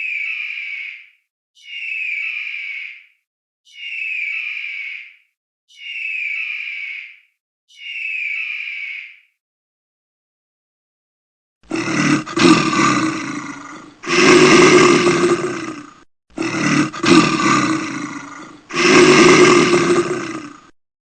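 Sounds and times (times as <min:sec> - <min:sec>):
large animal roaring: 0:11.7 - 0:20.7.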